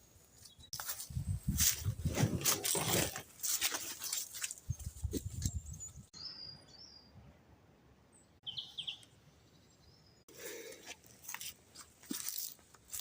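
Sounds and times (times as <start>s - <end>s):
small birds chirping: 0.1s - 0.8s, 4.3s - 7.3s, 8.0s - 10.3s.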